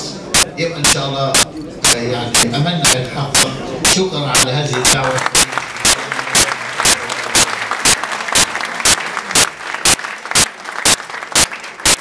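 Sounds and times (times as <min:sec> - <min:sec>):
sharp regular beats: 0:00.3 - 0:12.0
audience applause: 0:04.7 - 0:12.0.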